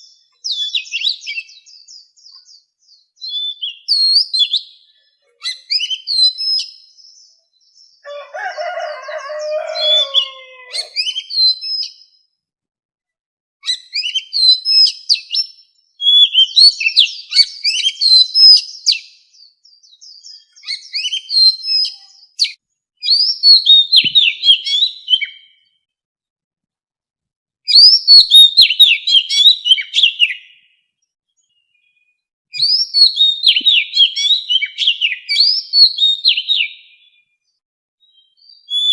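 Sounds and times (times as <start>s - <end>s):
bird singing whistles and chirps: 0.0s - 12.2s, 13.6s - 25.7s, 27.7s - 30.8s, 31.4s - 37.3s, 38.0s - 38.9s
low rough bird call: 8.0s - 11.5s.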